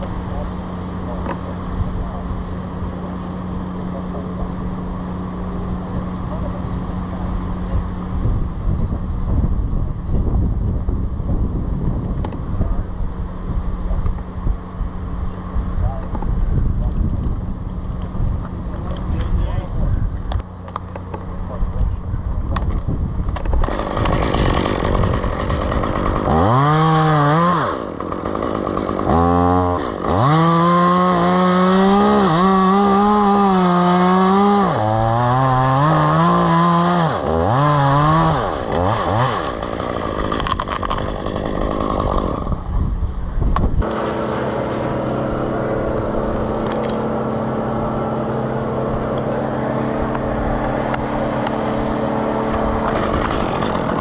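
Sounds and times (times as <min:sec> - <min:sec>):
chainsaw revving: 0:23.4 - 0:42.8, 0:43.8 - 0:54.0.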